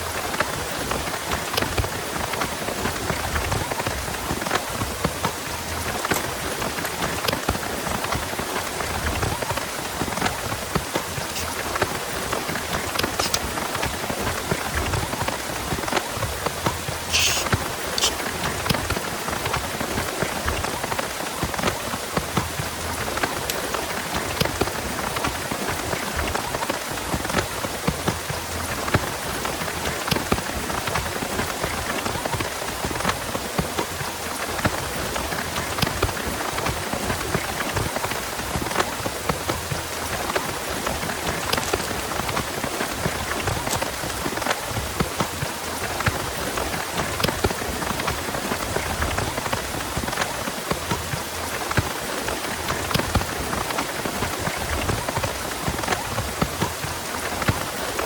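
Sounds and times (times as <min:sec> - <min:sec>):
heavy rain falling: 0:00.0 - 0:58.0
sharp high hiss: 0:17.0 - 0:18.3.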